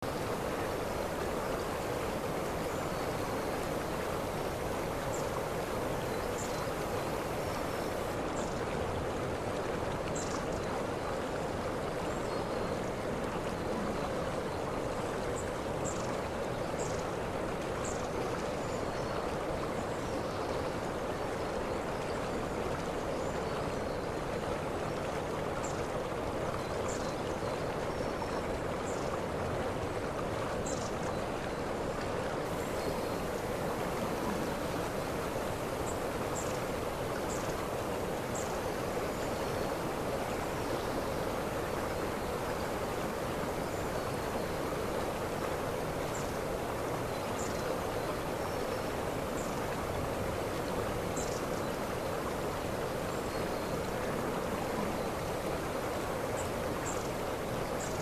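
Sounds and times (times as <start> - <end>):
waterfall rushing and splashing: 0.0 - 10.1, 29.3 - 58.0.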